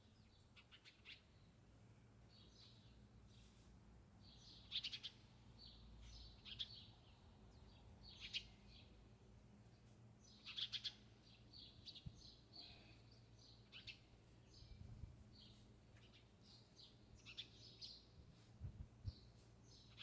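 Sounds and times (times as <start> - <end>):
songbirds chirping: 4.2 - 20.0.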